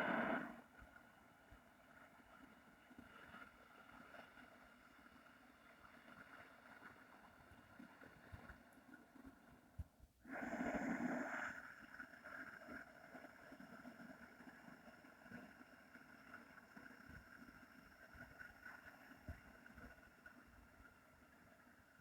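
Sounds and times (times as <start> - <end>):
slow hissing breathing: 0.0 - 0.7, 10.3 - 11.7.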